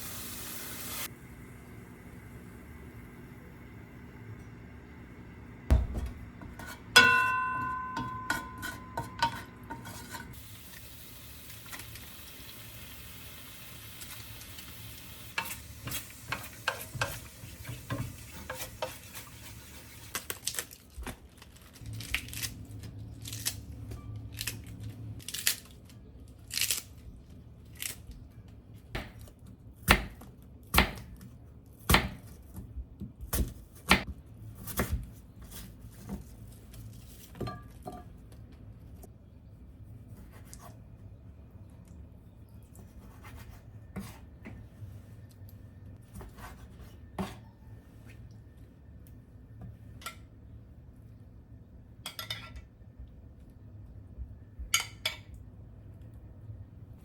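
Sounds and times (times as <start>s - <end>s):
food sizzling in a pan: 0.0s - 2.9s, 10.3s - 20.3s
utensils knocking on pans: 5.7s - 10.4s
metal clink ringing: 7.0s - 9.3s.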